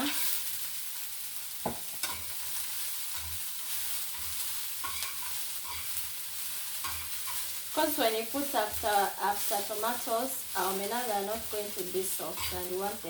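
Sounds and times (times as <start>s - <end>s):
vegetables sizzling in a pan: 0.0s - 13.0s
spoon stirring: 11.3s - 12.9s.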